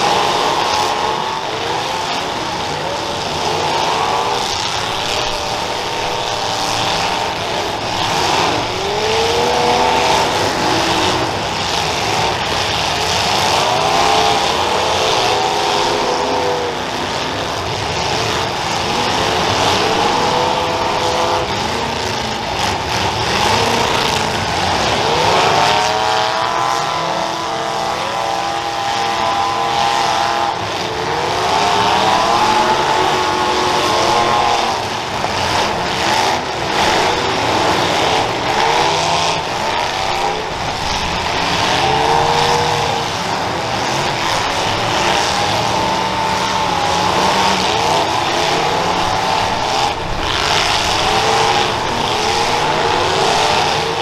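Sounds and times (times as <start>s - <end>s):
car engines revving: 0.0s - 54.0s.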